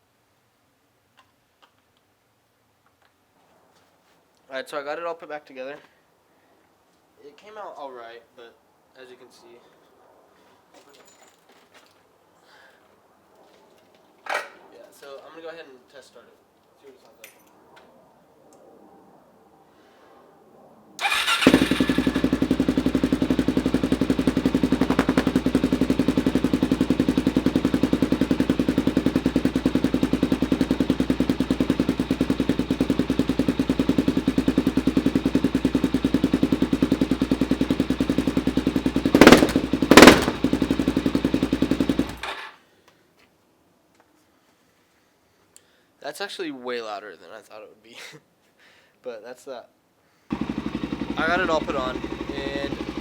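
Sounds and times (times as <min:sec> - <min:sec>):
loud engine revving bursts: 0:21.0 - 0:22.7, 0:39.2 - 0:40.8, 0:50.3 - 0:53.0
motorcycle engine idling: 0:21.0 - 0:42.2, 0:50.3 - 0:53.0.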